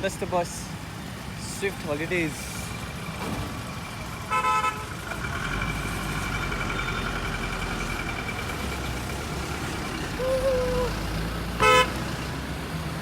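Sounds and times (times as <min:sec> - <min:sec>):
bus engine idling: 0:00.0 - 0:13.0
horn toot: 0:11.6 - 0:12.0.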